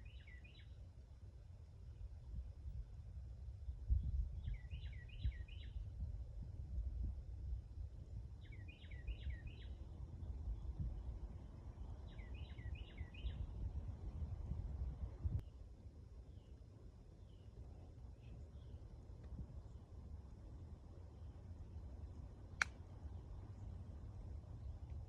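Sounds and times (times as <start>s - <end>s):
songbird whistling: 0.0s - 0.7s, 4.4s - 5.8s, 8.4s - 9.8s, 12.1s - 13.5s.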